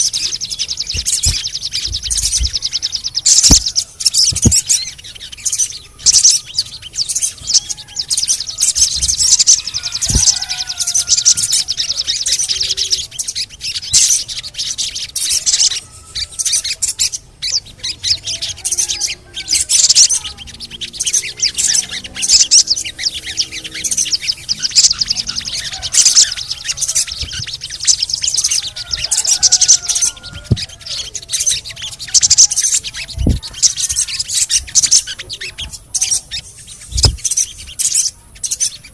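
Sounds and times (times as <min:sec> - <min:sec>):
bird singing high chirps and trills: 0:00.0 - 0:38.9.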